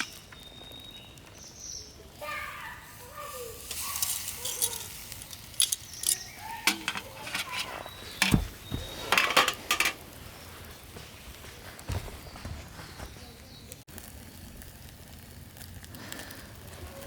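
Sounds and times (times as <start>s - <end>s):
cooking gear clinking and clattering: 3.6s - 10.1s
metal and glass clicks: 3.7s - 10.0s
dull low thump: 8.2s - 9.0s.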